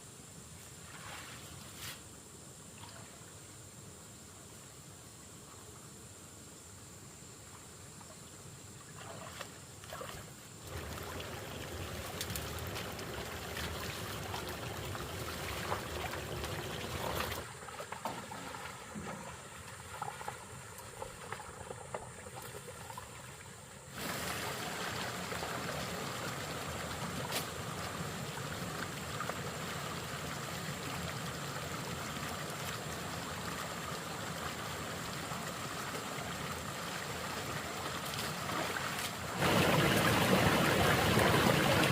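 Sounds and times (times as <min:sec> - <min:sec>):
water trickling and pouring: 0:10.6 - 0:41.9.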